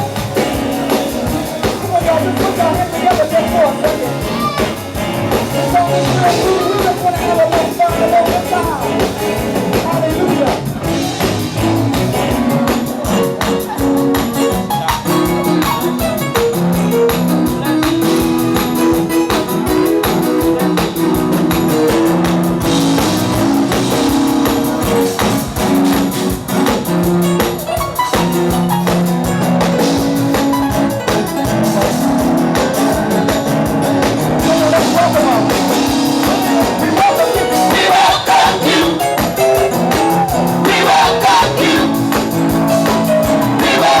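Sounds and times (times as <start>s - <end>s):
band music with drums and guitar: 0.0s - 44.0s
person singing: 5.4s - 10.4s, 34.4s - 44.0s.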